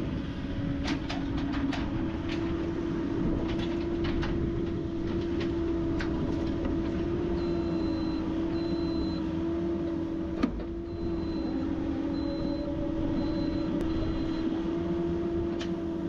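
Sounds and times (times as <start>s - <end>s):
excavator diesel engine running: 0.0s - 16.0s
faint high beeps: 10.9s - 14.5s.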